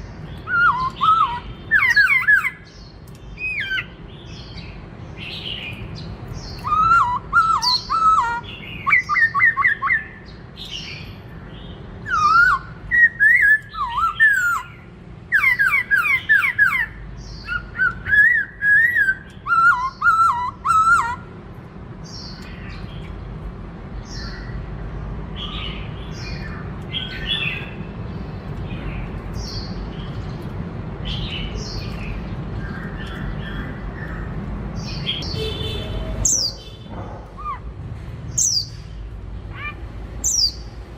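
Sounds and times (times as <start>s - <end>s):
bird chirps: 0.0s - 21.3s, 25.3s - 40.8s
bird singing whistled phrases: 0.4s - 2.7s, 6.6s - 10.2s, 12.0s - 14.7s, 15.3s - 21.2s.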